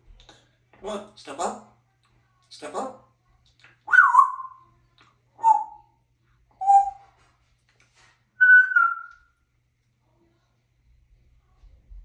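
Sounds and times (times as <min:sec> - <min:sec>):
parrot whistling: 0:03.9 - 0:04.6, 0:05.4 - 0:05.8, 0:06.6 - 0:07.0, 0:08.4 - 0:09.2.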